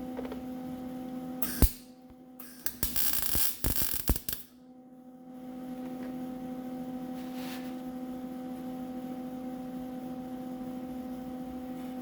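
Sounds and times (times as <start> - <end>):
steady electrical hum: 1.2 - 9.3
sharp welding crack: 1.4 - 4.5
welding arc crackling: 1.4 - 4.5.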